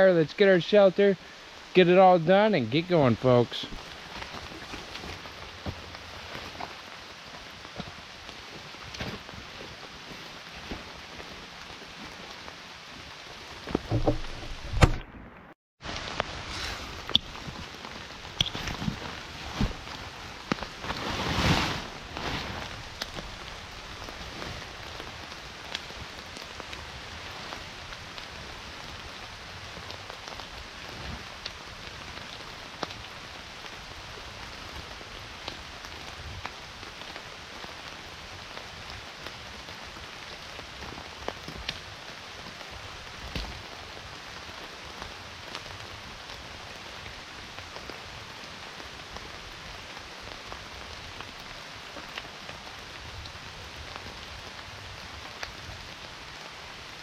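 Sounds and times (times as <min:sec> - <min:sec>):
steady rain falling: 0:00.0 - 0:57.0
dull thump: 0:13.7 - 0:15.1.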